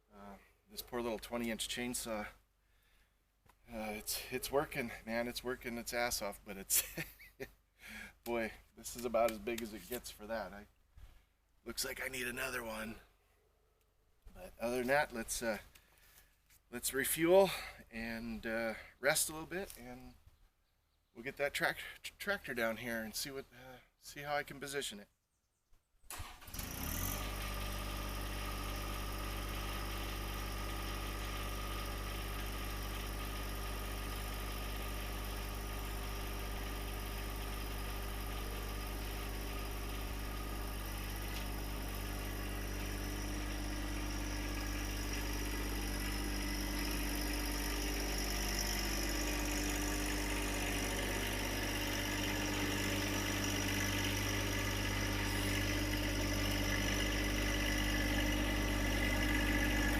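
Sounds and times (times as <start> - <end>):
tractor engine running: 26.1 - 59.9.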